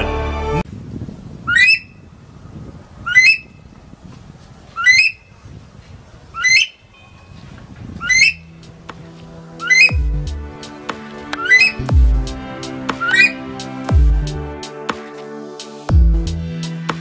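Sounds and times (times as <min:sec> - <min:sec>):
bird rising sharp calls: 0:04.8 - 0:05.3, 0:06.4 - 0:06.9, 0:08.0 - 0:08.6, 0:09.6 - 0:10.0, 0:11.4 - 0:11.8.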